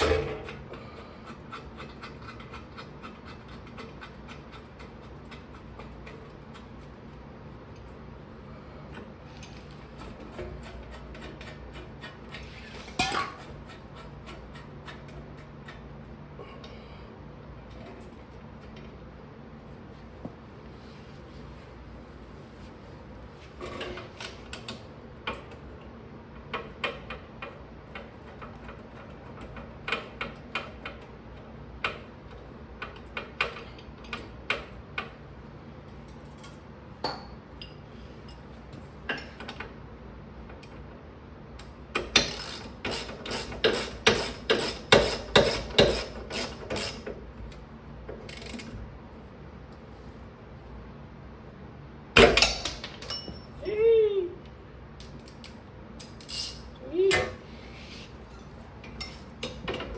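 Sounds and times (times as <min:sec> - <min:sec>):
ratchet wrench clicking: 0:42.2 - 0:47.1, 0:48.3 - 0:48.7
metal tools clinking: 0:52.3 - 0:53.6.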